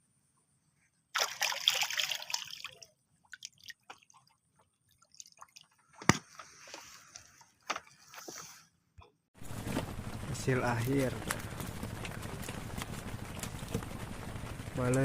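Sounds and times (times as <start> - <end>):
water splashing and sloshing: 1.1 - 8.4
drips: 1.2 - 6.0.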